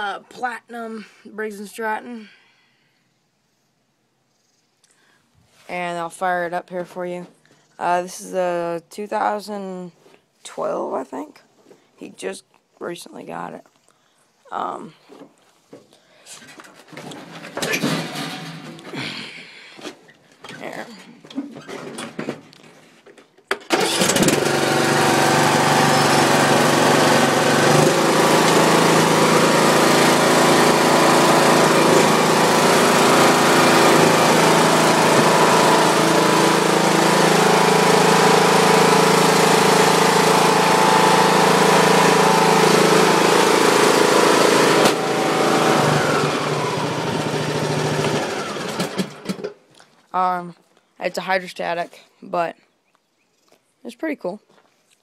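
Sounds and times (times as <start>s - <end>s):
riding mower engine starting and running: 16.8s - 19.0s, 23.5s - 49.7s.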